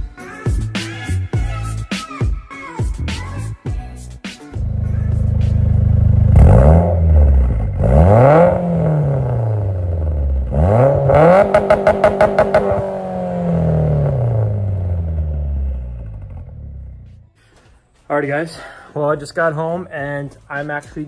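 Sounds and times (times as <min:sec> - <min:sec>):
car engine revving: 0:04.6 - 0:17.3.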